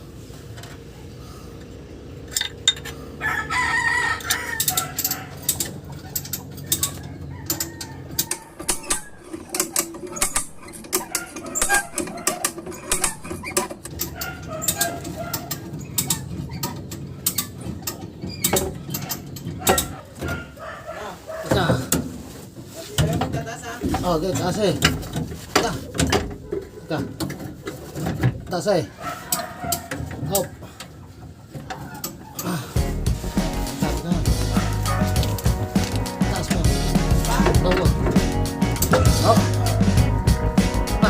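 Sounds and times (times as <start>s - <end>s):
metallic clicks of tools: 2.3s - 3.0s, 4.2s - 19.9s
rooster crowing: 3.1s - 5.5s, 6.7s - 9.3s.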